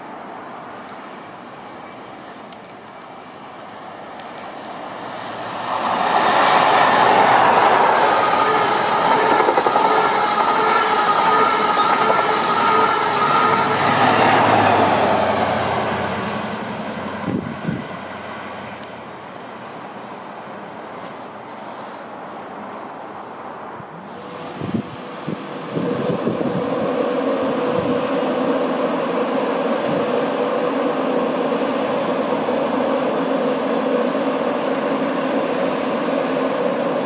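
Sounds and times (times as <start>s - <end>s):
express train passing at speed: 0.0s - 37.0s.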